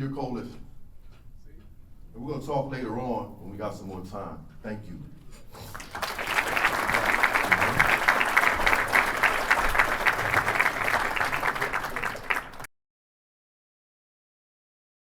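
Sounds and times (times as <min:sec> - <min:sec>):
audience applauding: 0:05.7 - 0:12.7.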